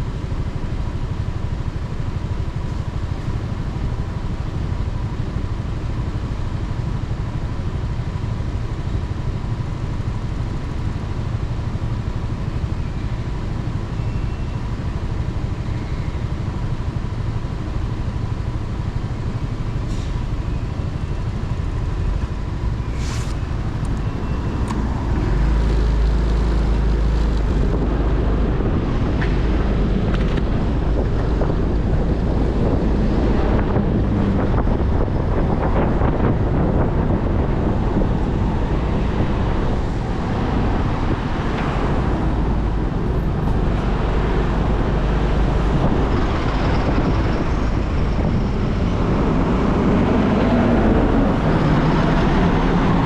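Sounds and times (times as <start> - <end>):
wind rumbling on microphone: 14.9 - 53.0.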